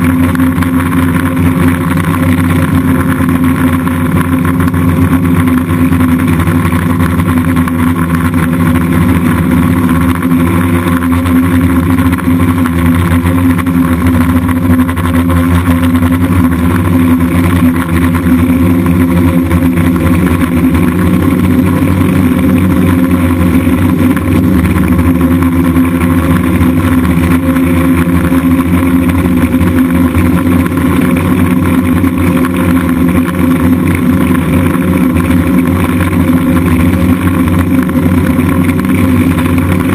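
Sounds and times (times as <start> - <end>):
drone motors buzzing: 0.0 - 39.9.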